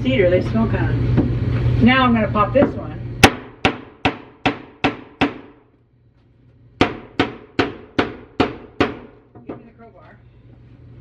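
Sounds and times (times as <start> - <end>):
hammer striking wooden board: 3.2 - 5.6, 6.8 - 9.6.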